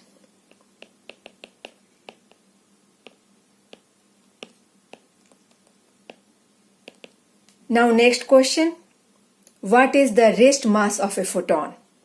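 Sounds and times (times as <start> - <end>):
pen tapping on writing surface: 0.5 - 2.4, 3.0 - 6.2, 6.8 - 7.2.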